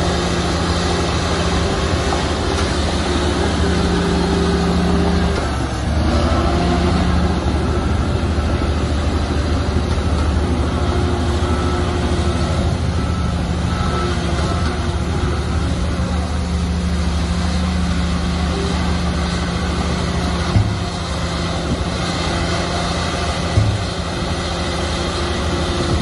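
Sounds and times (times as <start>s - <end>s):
bulldozer diesel engine running: 0.0s - 26.0s
noisy clatter: 17.8s - 26.0s.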